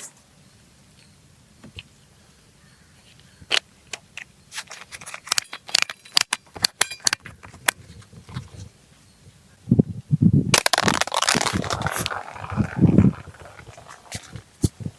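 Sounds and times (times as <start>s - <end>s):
packaging crackling and clicking: 10.6s - 14.4s.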